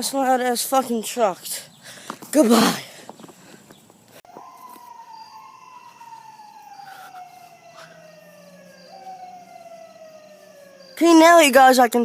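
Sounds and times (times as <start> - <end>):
faint siren wailing: 4.2 - 11.8.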